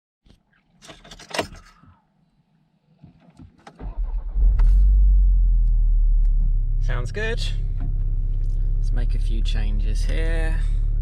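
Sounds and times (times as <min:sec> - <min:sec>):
car engine starting and idling: 0:03.0 - 0:11.0.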